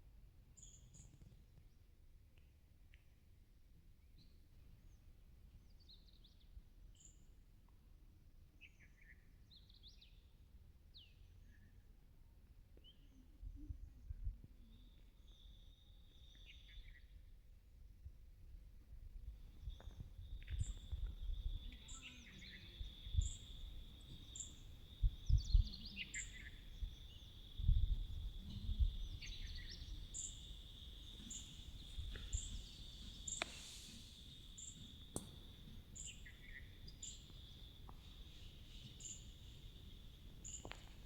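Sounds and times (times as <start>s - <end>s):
insect drone: 19.6s - 41.0s
birds chirping and calling: 19.7s - 41.0s.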